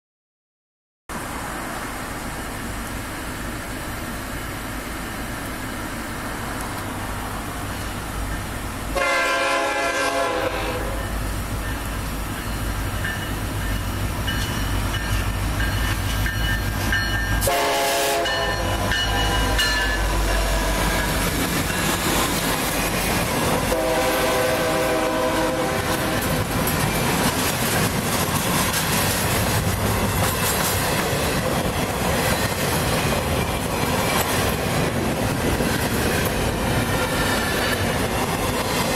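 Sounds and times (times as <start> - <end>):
locomotive rumble: 1.2 - 38.9
train air horn blasts: 8.9 - 11.1, 17.4 - 21.0, 23.6 - 26.4
train wheels clattering: 10.9 - 38.9.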